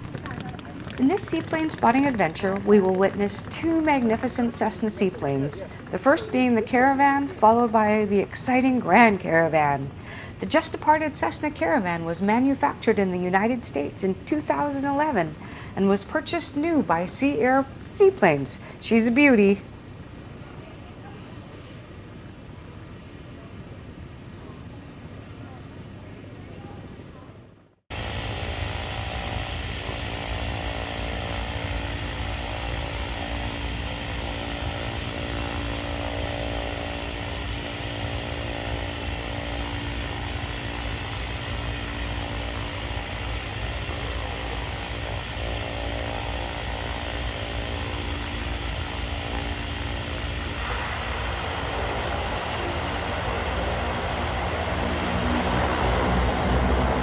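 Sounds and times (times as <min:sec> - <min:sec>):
propeller engine humming: 0:00.0 - 0:20.4, 0:27.9 - 0:57.0.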